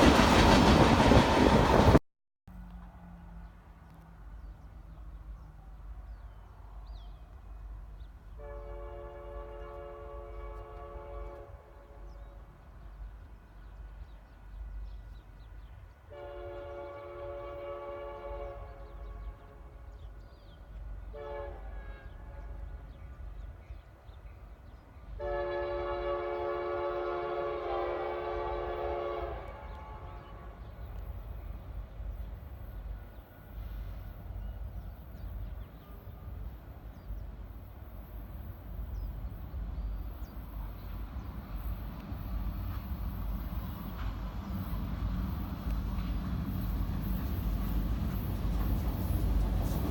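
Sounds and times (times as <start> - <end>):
low train rumble: 0.0 - 49.9
locomotive air horn: 8.4 - 12.1, 16.1 - 19.7, 21.1 - 22.6, 25.2 - 30.6.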